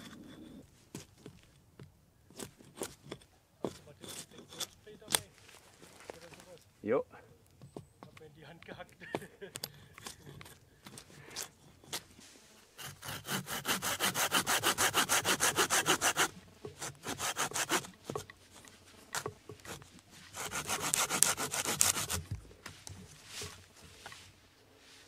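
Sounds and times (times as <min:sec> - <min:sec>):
hand saw cutting a log: 0:02.3 - 0:05.3, 0:09.5 - 0:12.2, 0:12.8 - 0:24.2.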